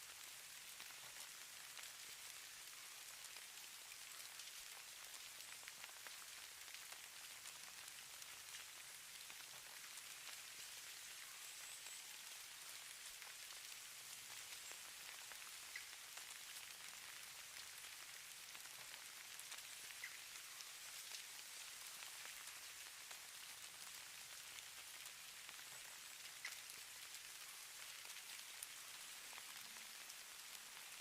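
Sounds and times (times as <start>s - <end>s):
faint high hiss: 8.5s - 31.0s
tiny ticks: 11.2s - 23.2s, 25.0s - 30.9s.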